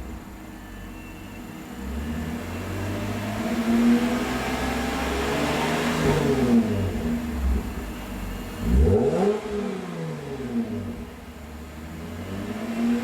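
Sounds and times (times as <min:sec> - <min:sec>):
car engine revving: 0:08.6 - 0:11.2.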